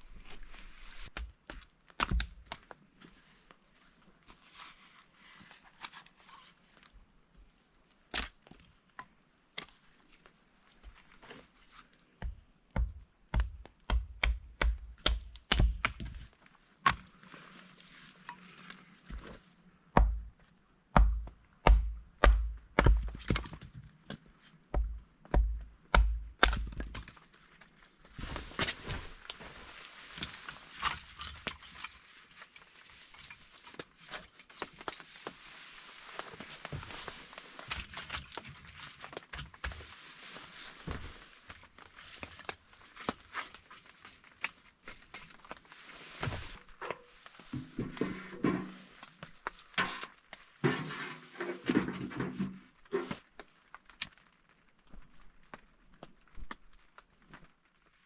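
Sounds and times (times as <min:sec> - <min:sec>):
axe chopping firewood: 0:01.1 - 0:02.6, 0:12.2 - 0:16.2, 0:16.8 - 0:17.1, 0:20.0 - 0:23.6, 0:24.7 - 0:27.1.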